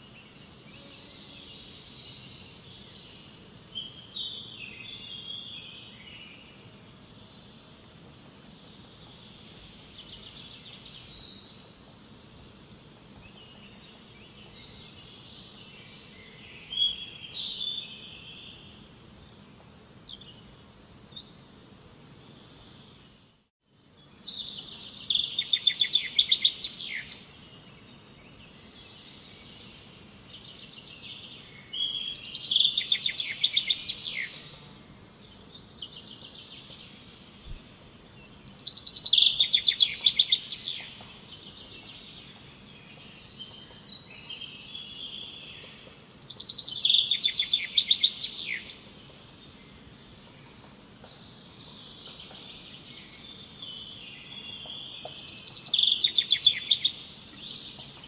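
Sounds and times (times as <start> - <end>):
songbird trilling: 31.8 - 34.4, 54.5 - 57.5.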